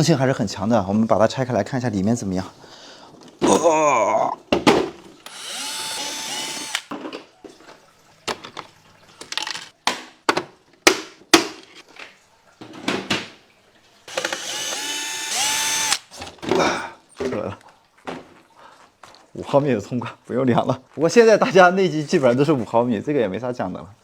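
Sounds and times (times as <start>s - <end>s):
cordless screwdriver running: 5.3s - 6.9s, 14.1s - 16.1s.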